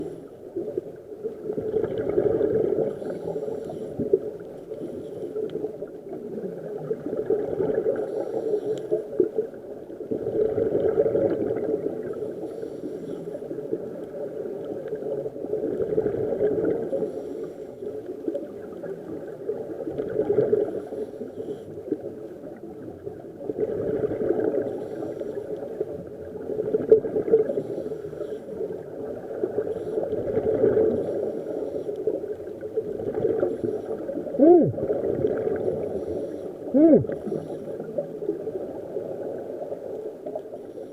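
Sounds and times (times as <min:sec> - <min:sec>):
air bubbling and gurgling underwater: 0:00.0 - 0:04.9, 0:05.5 - 0:08.4, 0:09.1 - 0:12.7, 0:13.5 - 0:17.3, 0:18.3 - 0:40.9
diver breathing through regulator: 0:02.9 - 0:05.4, 0:07.9 - 0:09.1, 0:12.2 - 0:13.5, 0:16.9 - 0:17.9, 0:24.6 - 0:25.5, 0:27.4 - 0:28.6, 0:30.9 - 0:32.2, 0:35.5 - 0:38.0.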